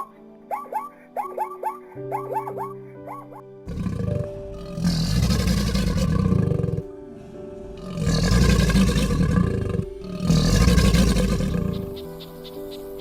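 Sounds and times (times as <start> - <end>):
background music: 0.0 - 13.0
big cat roaring: 3.6 - 12.0.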